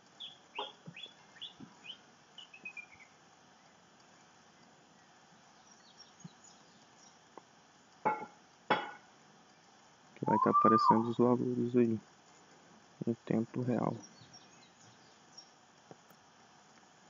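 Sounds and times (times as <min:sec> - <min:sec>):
bird chirping faintly: 0:00.2 - 0:07.3, 0:10.2 - 0:11.2.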